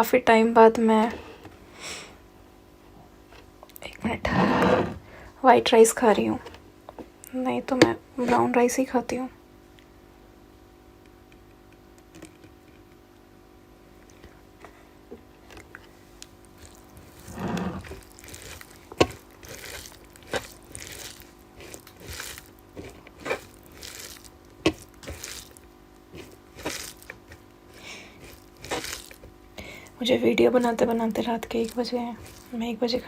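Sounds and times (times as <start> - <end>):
person chewing and crunching: 15.4 - 30.0, 30.6 - 33.0.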